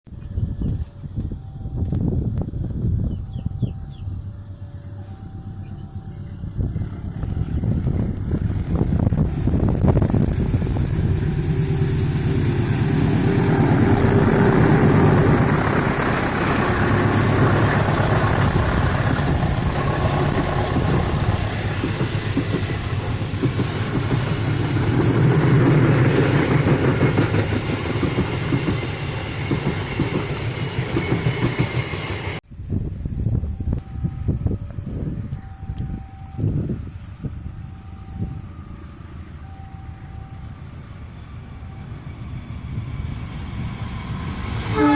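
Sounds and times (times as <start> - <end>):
diesel locomotive rumble: 0.2 - 44.9
train wheels clattering on rails: 7.2 - 32.4.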